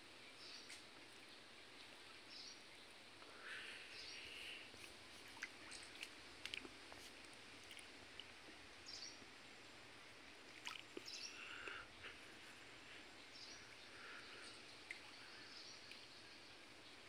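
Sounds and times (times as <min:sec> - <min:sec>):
faint steady hiss: 0:00.0 - 0:17.0
faint bird calls: 0:11.0 - 0:16.4.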